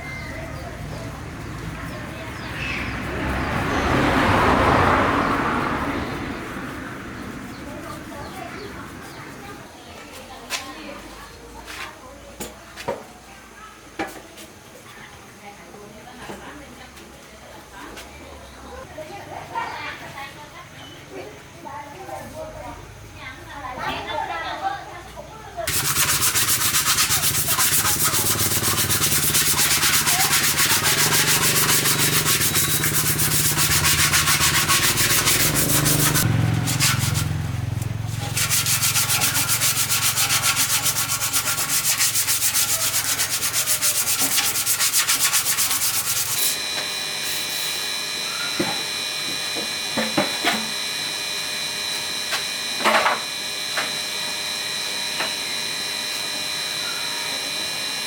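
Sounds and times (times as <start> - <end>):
sanding scrubbing: 25.7 - 47.8.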